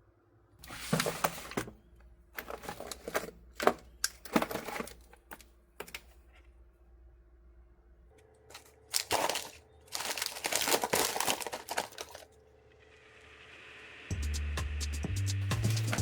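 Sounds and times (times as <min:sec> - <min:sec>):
crinkling and crackling: 0:00.6 - 0:06.6, 0:08.5 - 0:12.3
music with steady beat: 0:14.1 - 0:16.0.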